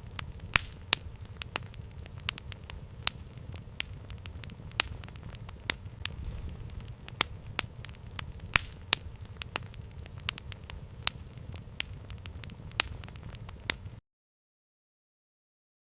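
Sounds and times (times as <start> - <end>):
fire crackling and popping: 0.0 - 14.0
low rumble of flame: 0.0 - 14.0.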